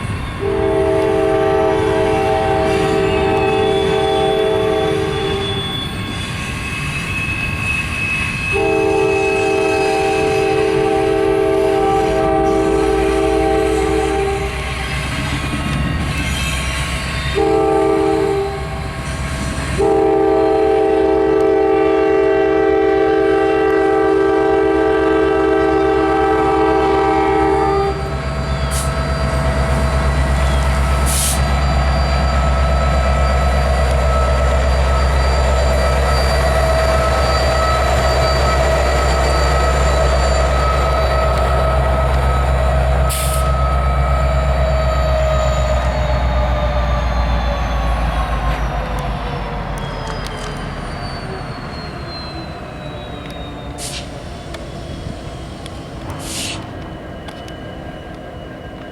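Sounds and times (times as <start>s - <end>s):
low rumble of passing train: 0.0s - 58.9s
locomotive horn: 0.4s - 6.0s, 8.2s - 15.1s, 17.2s - 46.1s.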